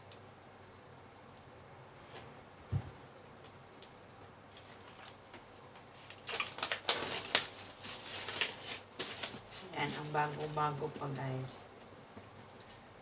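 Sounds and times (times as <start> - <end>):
packaging crinkling: 3.8 - 11.2
packaging bump: 6.1 - 10.0.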